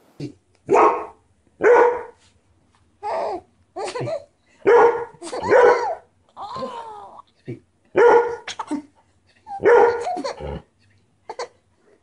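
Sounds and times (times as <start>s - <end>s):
dog barking: 0.7s - 2.2s, 4.6s - 6.0s, 8.0s - 8.5s, 9.6s - 10.2s
baby laughing: 3.0s - 4.3s, 8.4s - 10.4s.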